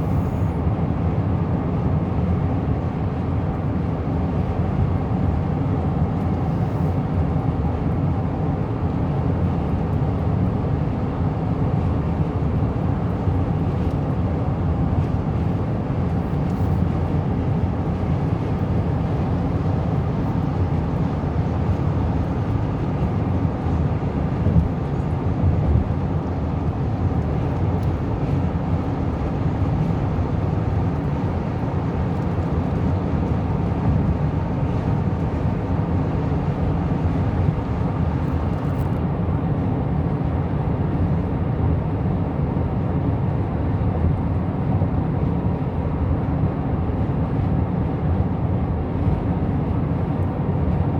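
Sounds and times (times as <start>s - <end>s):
car road and engine noise: 26.6s - 39.1s.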